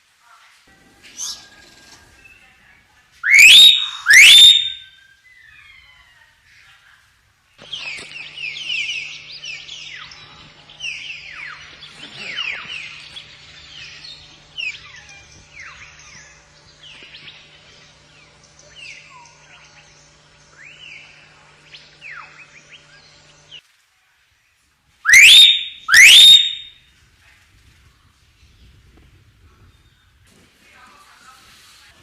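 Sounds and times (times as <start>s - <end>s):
faint steady hum: 0.0s - 32.0s
bird whistling and chirping: 3.2s - 5.6s, 25.1s - 26.7s.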